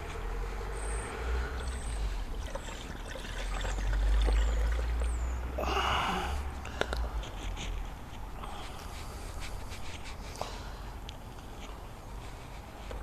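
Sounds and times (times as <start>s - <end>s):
liquid pouring through funnel: 1.5s - 5.2s.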